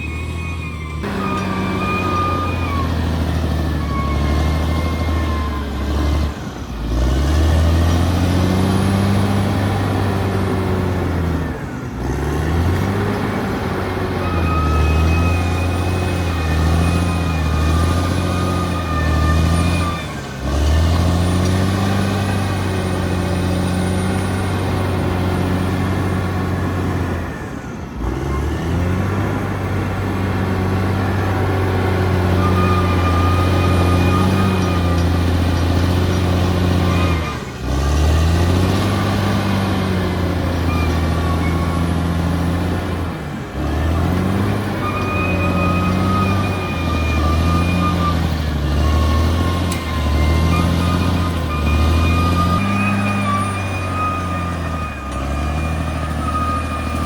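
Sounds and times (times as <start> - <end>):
bulldozer diesel engine under load: 0.0 - 57.0.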